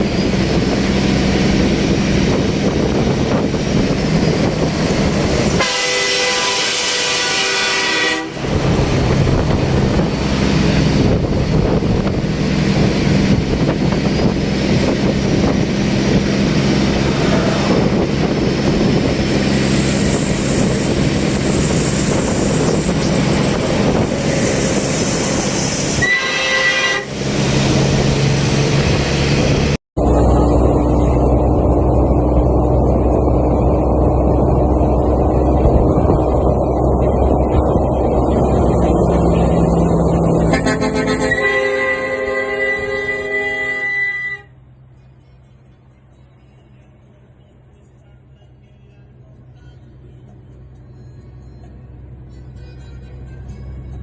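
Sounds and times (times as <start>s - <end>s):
heavy truck rumbling: 0.0s - 54.0s
multi-tone air horn chord: 5.6s - 8.6s, 26.0s - 27.2s, 40.5s - 44.6s.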